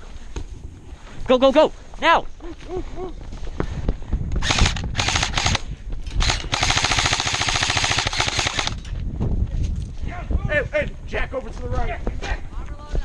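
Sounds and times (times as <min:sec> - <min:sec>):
airsoft gun firing bursts: 0:04.4 - 0:08.9.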